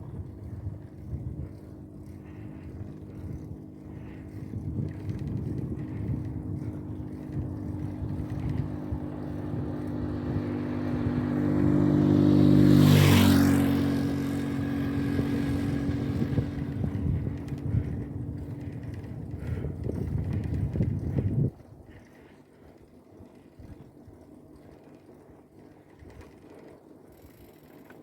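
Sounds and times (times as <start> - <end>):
wind and riding noise: 0.0 - 28.0
vehicle engine passing by: 5.0 - 19.6.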